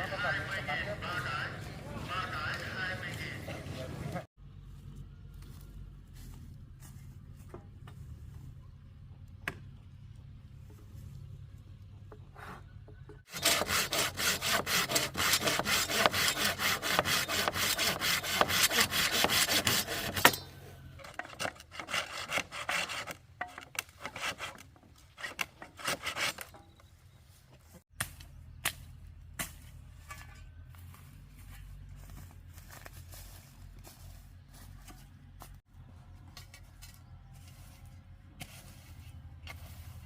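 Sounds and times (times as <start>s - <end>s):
hand saw cutting wood: 13.3s - 26.6s.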